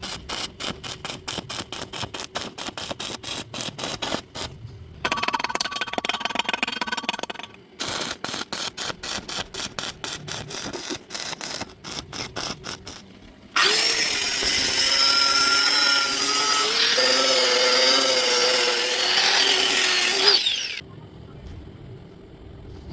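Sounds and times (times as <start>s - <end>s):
power tool whining on metal: 13.6s - 20.8s.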